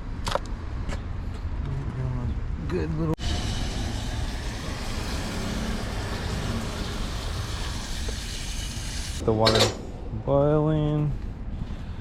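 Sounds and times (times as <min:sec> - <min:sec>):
low rumble of burner: 0:01.6 - 0:12.0
water boiling and bubbling: 0:03.2 - 0:09.2.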